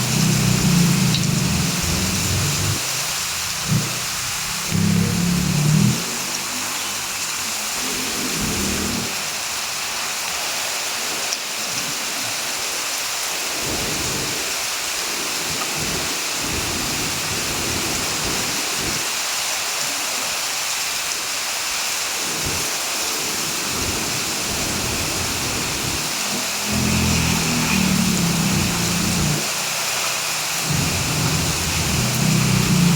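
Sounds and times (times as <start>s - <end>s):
low rumbles: 0.0s - 2.8s
heavy rain hiss: 0.0s - 32.9s.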